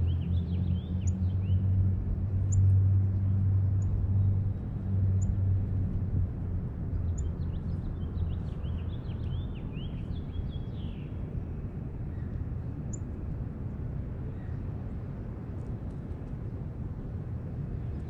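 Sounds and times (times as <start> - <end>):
low mechanical hum: 0.0 - 18.0
small birds chirping: 7.1 - 11.1.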